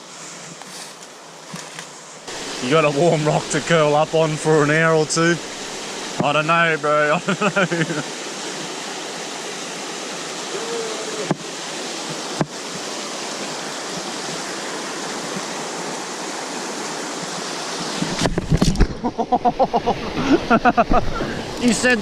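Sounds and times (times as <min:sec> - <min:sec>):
flowing river water: 0:00.0 - 0:22.0
voices: 0:02.3 - 0:08.0, 0:10.5 - 0:11.4, 0:21.6 - 0:22.0.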